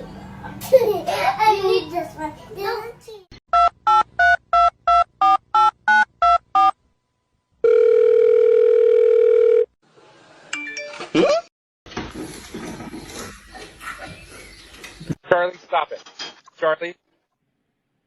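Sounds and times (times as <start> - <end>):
steady phone tone: 7.6 - 9.7.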